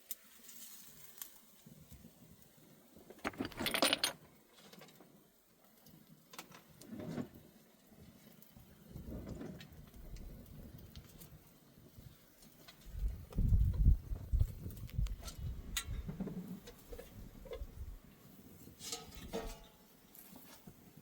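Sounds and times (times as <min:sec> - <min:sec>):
rustling: 0:03.1 - 0:04.2
metallic jingling and clinking: 0:03.2 - 0:04.2.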